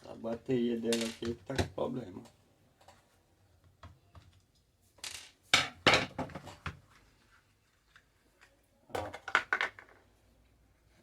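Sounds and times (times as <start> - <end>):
hard plastic parts clattering: 0.9 - 1.8.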